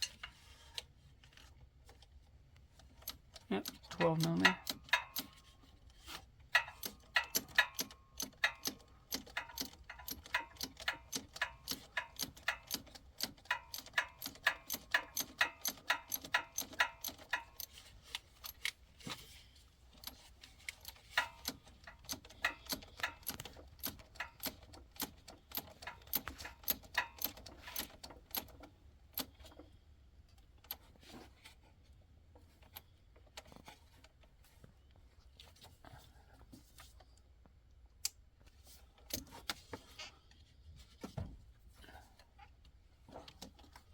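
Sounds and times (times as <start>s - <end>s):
ratchet wrench clicking: 3.0s - 5.4s, 6.6s - 17.8s, 20.1s - 28.5s.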